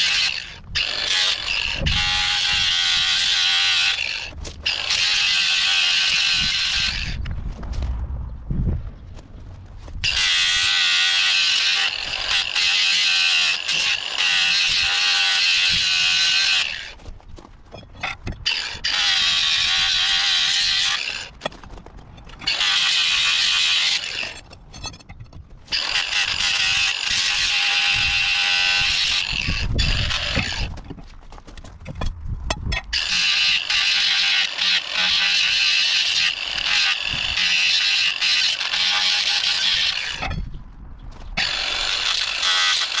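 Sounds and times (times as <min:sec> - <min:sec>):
power grinder grinding metal: 0:00.0 - 0:07.2, 0:10.0 - 0:17.0, 0:18.0 - 0:21.3, 0:22.4 - 0:24.5, 0:25.7 - 0:30.8, 0:33.0 - 0:40.4, 0:41.4 - 0:43.0.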